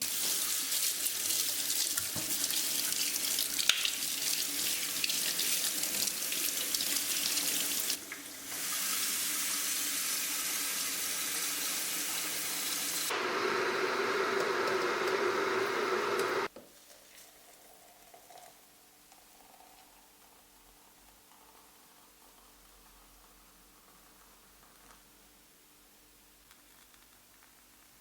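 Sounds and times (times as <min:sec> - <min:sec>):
tap water running into sink: 0:00.0 - 0:13.1.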